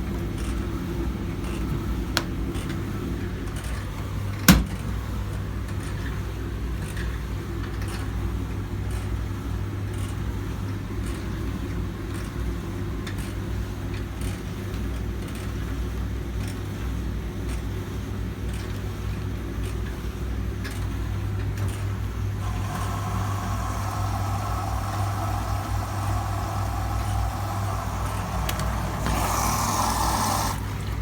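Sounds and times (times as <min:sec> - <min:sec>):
washing machine motor hum: 0:03.8 - 0:05.7, 0:21.8 - 0:31.0.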